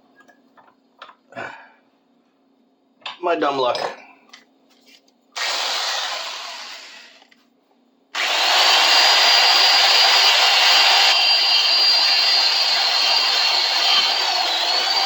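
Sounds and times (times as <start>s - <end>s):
wire wheel drill whining: 8.2s - 15.0s.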